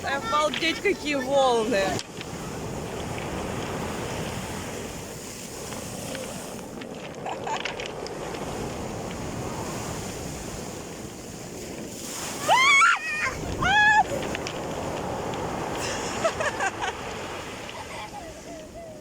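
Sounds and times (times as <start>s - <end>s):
waves breaking: 0.0s - 19.0s.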